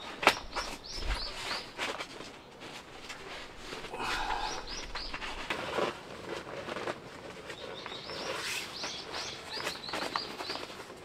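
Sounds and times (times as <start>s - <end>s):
small birds chirping: 0.0s - 5.9s, 7.4s - 11.0s
coarse low sound: 2.6s - 6.3s.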